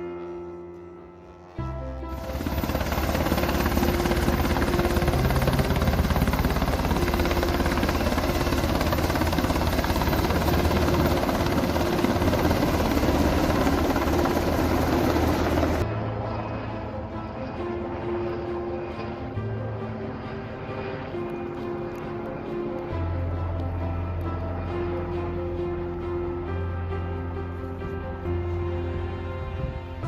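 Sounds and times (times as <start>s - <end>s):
aircraft engine and rotor chop: 2.0s - 23.1s.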